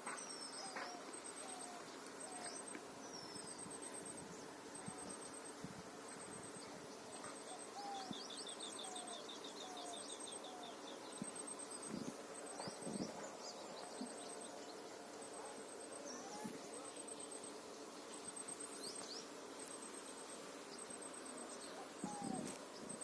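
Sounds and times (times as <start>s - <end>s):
bird chirping: 6.2s - 17.4s.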